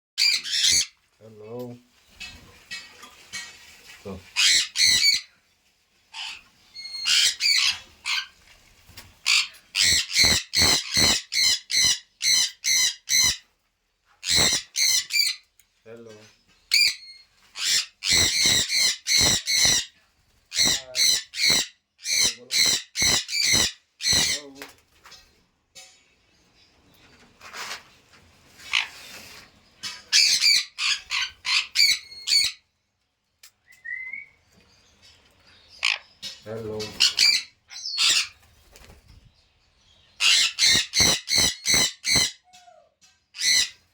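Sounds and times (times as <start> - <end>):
parrot squawking: 0.2 - 0.9, 4.4 - 5.3, 6.2 - 8.3, 9.2 - 13.4, 14.2 - 15.4, 16.7 - 19.9, 20.5 - 24.4, 29.9 - 32.6, 35.8 - 36.1, 36.8 - 38.4, 40.2 - 43.8
parrot rising whistle: 33.8 - 34.4.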